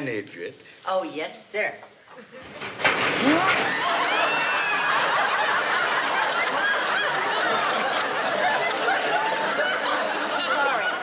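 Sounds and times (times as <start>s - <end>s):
studio audience laughing: 3.7s - 11.0s.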